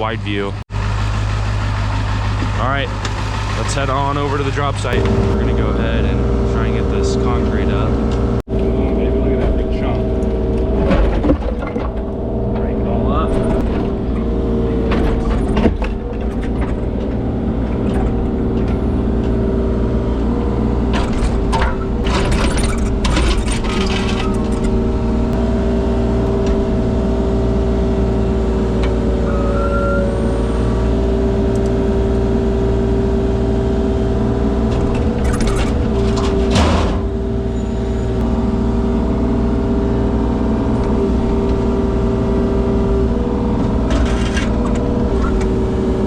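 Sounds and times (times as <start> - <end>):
diesel digger engine whining: 0.0 - 46.0.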